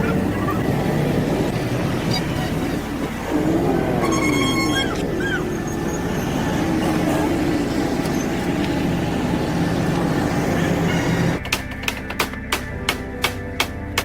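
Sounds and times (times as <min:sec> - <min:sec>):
truck engine running: 0:00.0 - 0:11.4.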